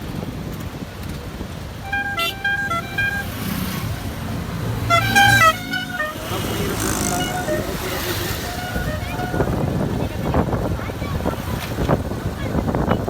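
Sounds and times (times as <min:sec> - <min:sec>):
road and engine rumble: 0:00.0 - 0:13.0
musical vehicle horn: 0:01.8 - 0:10.2.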